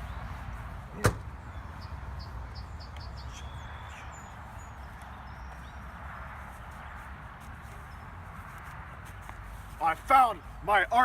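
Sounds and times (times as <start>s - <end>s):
small birds chirping and whistling: 1.5s - 5.8s.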